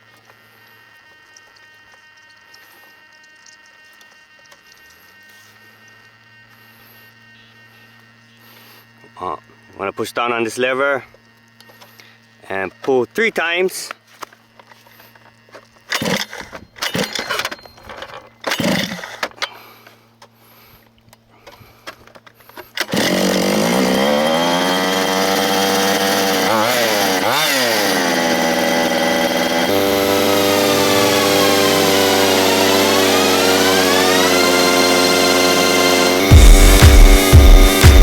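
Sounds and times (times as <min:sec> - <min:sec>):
pull-start cord yanked: 0:15.8 - 0:20.4, 0:21.4 - 0:38.0
loud droning with gliding pitch: 0:23.5 - 0:38.0.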